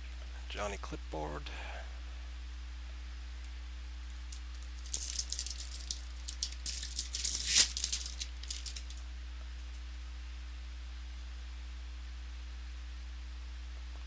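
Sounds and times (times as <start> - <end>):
low electrical hum: 0.0 - 14.0
wrapper crinkling and crackling: 4.1 - 9.0.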